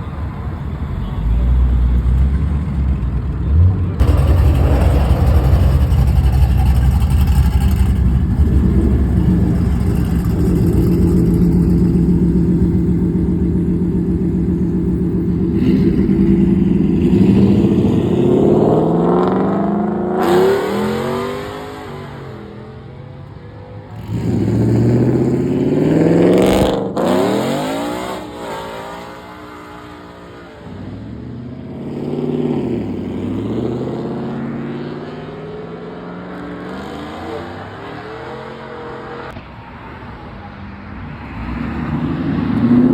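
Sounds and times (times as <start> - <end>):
engine drone: 3.4 - 19.8
cars accelerating hard: 3.5 - 22.9, 23.9 - 39.4, 41.1 - 42.9.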